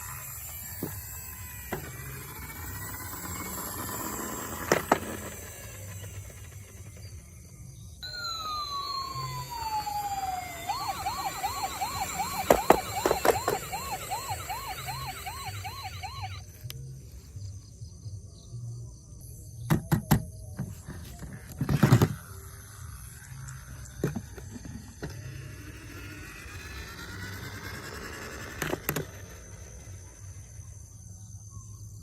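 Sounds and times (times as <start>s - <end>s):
toy electronic siren wailing: 0.0s - 7.3s, 8.0s - 17.0s, 22.1s - 30.8s.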